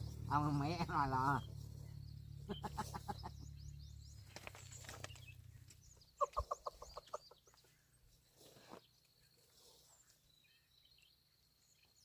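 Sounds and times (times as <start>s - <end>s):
faint high bird chirps: 0.0s - 12.0s
chicken clucking: 6.2s - 7.6s.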